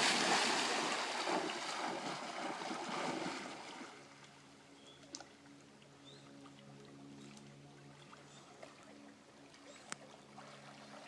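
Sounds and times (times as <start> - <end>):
dog splashing into water: 0.0 - 3.6
faint musical tones: 4.0 - 11.0.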